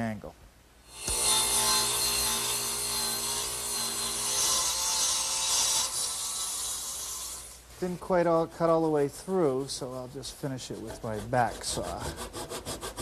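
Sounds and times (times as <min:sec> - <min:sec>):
saw blade cutting wood: 0:00.9 - 0:07.6, 0:09.8 - 0:13.0.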